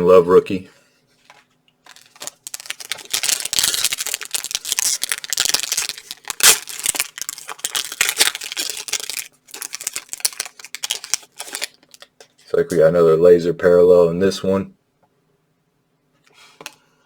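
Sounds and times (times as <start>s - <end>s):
wrapper tearing and crinkling: 1.8s - 12.1s
sharp crack: 4.6s - 7.1s.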